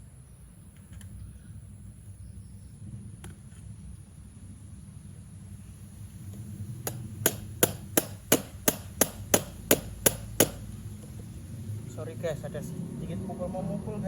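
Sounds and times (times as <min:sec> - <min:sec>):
hammer striking metal pipe: 0:06.8 - 0:10.7.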